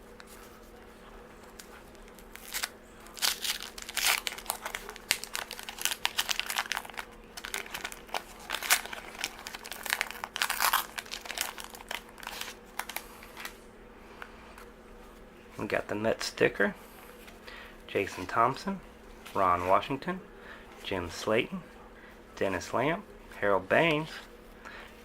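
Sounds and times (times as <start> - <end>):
card pack wrapper tearing and crinkling: 1.5 - 13.6.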